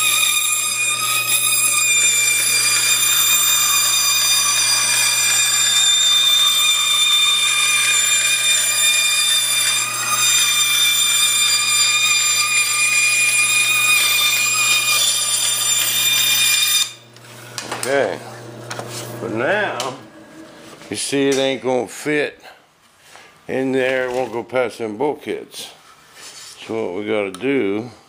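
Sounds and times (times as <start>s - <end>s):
power tool motor whining: 0.0s - 20.9s.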